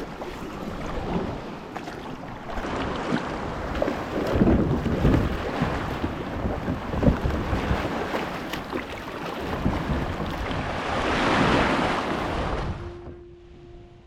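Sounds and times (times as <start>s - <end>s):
waves washing around kayak: 0.0s - 13.2s
wind buffeting microphone: 2.4s - 13.2s.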